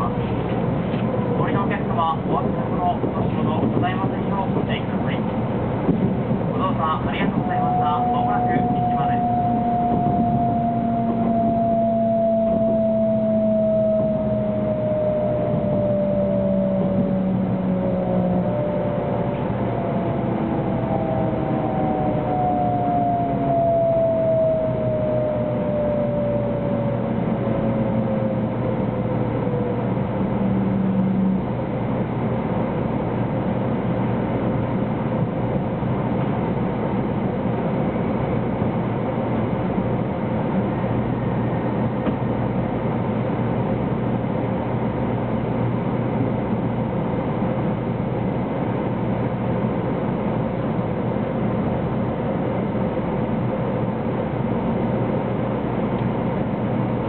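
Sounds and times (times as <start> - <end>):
wheels rumbling on rail: 0.0 - 57.0
traction motor whine: 7.3 - 32.1.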